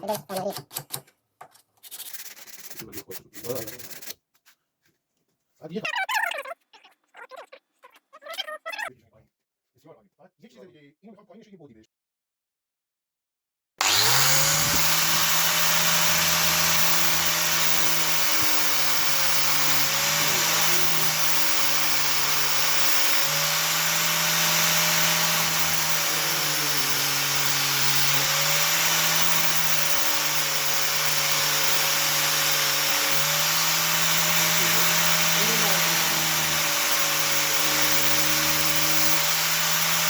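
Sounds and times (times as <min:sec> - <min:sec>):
electric power tool grinding: 0:13.8 - 0:40.0.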